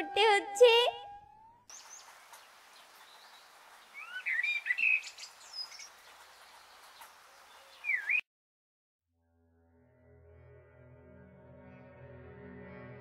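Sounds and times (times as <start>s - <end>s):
birds chirping and calling: 0.0s - 8.2s
faint outdoor hiss: 1.7s - 8.1s.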